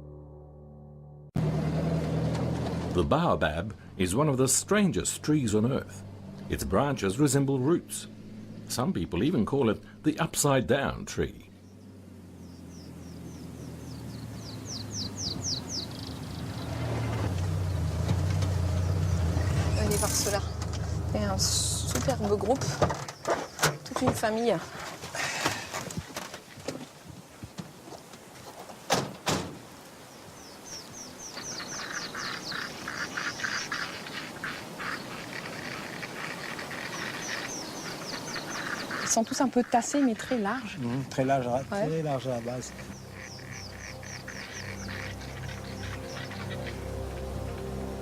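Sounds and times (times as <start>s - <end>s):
bird chirping: 11.1s - 18.0s, 30.1s - 48.0s.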